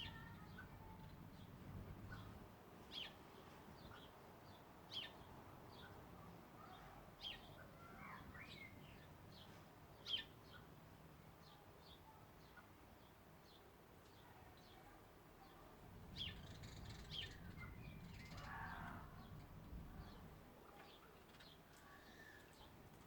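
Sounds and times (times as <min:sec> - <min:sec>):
birds chirping: 0:00.0 - 0:23.0
bird warbling: 0:16.2 - 0:20.3.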